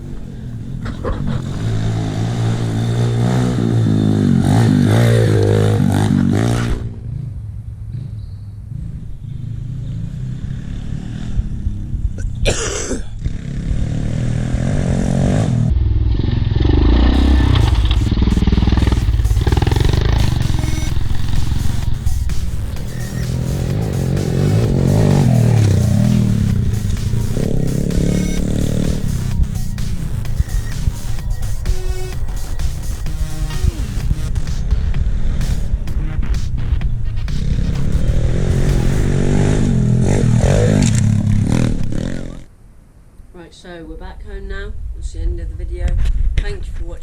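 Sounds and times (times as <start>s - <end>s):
sharp noise: 0.0s - 5.2s, 16.8s - 42.0s
pit bike engine revving: 0.0s - 12.2s, 13.2s - 42.4s.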